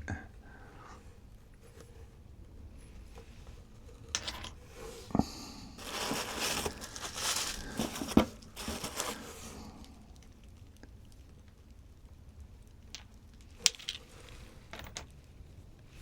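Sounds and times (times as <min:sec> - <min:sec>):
packing material crinkling: 0:05.8 - 0:10.0.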